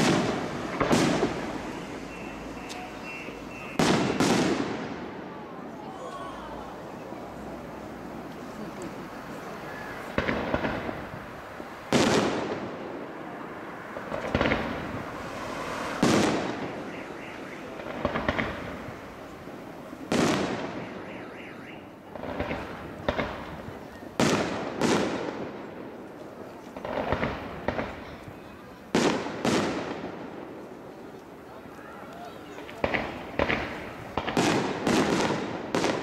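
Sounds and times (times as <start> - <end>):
firework crackling: 0.0 - 5.3, 6.7 - 36.0
firework shells bursting with bang: 14.0 - 19.1.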